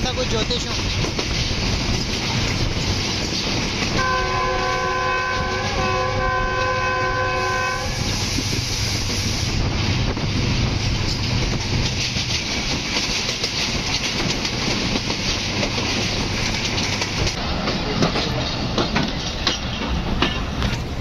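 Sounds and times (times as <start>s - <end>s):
wheels clicking over rail joints: 0.0s - 6.0s, 8.1s - 21.0s
train wheel and wind rush: 0.0s - 21.0s.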